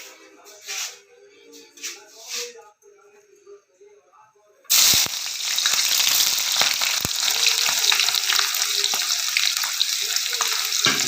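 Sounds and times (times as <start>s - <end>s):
food sizzling in hot oil: 4.7s - 11.0s.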